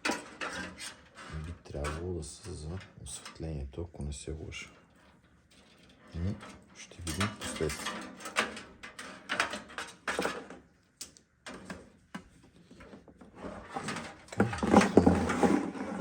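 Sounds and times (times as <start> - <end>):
scraping and rattling: 0.0 - 3.6, 4.4 - 10.7, 11.5 - 16.0
computer parts clicking and rustling: 7.0 - 11.9.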